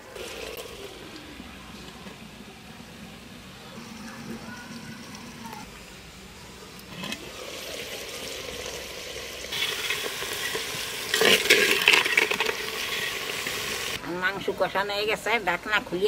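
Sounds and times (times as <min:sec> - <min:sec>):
meat sizzling: 0:07.2 - 0:14.0.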